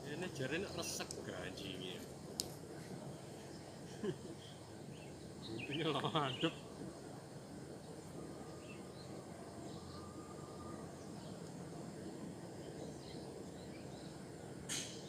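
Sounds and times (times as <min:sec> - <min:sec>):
steady low rush: 0:00.0 - 0:15.0
faint bird chirps: 0:03.4 - 0:06.8, 0:07.8 - 0:15.0.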